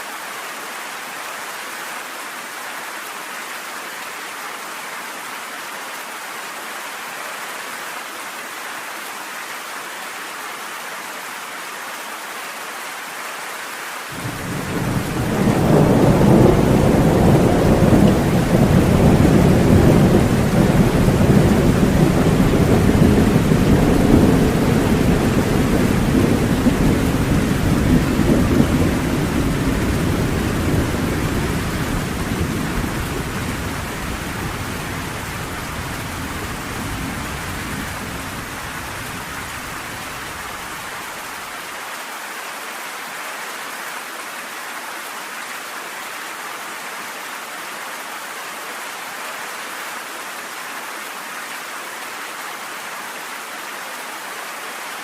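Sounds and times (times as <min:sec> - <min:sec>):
steady rain: 0:00.0 - 0:55.0
low rumble of thunder: 0:14.2 - 0:40.3.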